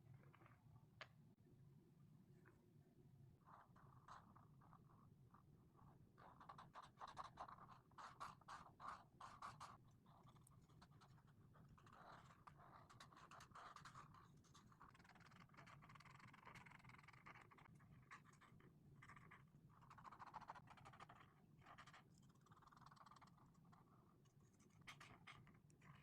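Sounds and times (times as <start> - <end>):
marker tips scratching on paper: 11.8 - 22.0.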